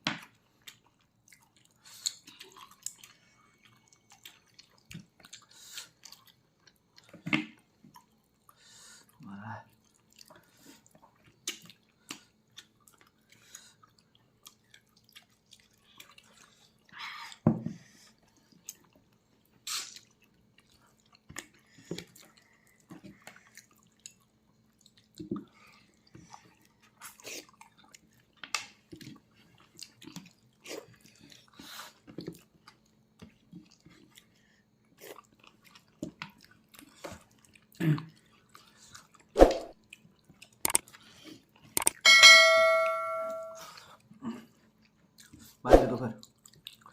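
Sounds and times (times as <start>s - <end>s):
person chewing with smacking: 0.2s - 17.4s, 18.0s - 42.0s, 43.8s - 45.6s, 46.2s - 46.9s.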